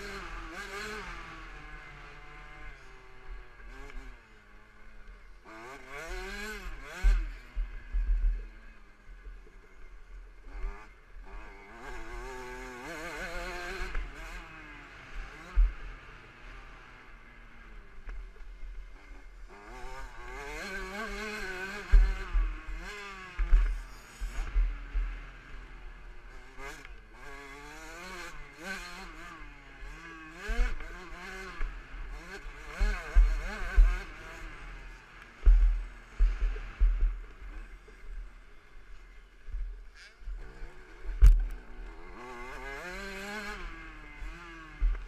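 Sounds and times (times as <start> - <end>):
two-stroke engine revving: 0.0 - 8.6, 10.4 - 45.0
heavy low thump: 35.4 - 37.2.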